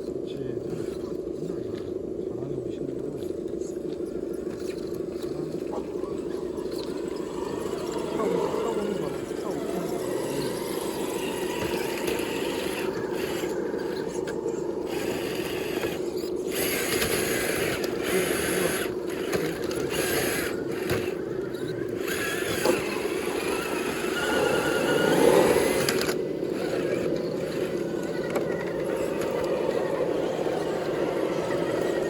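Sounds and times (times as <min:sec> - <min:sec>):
toy car electric motor whining: 0:06.4 - 0:32.0.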